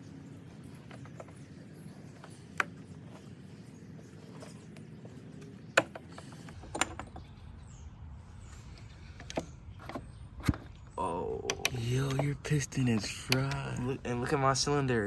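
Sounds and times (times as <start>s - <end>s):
low steady hum: 0.0s - 15.0s
metal tool clicks and knocks: 5.8s - 7.3s.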